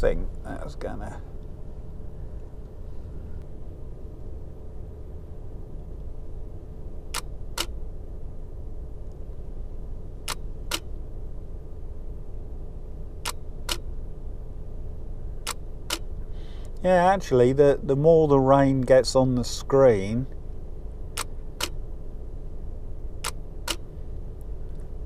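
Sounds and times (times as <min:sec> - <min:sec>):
low rumble: 0:00.0 - 0:25.0
camera shutter clicks: 0:10.3 - 0:10.9, 0:21.2 - 0:21.8, 0:23.2 - 0:23.8.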